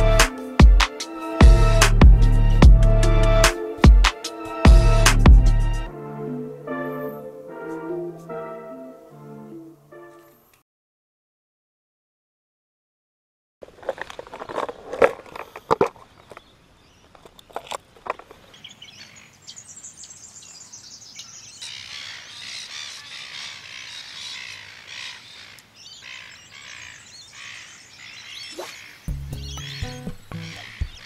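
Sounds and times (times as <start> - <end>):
birds chirping chorus: 14.4 - 31.0.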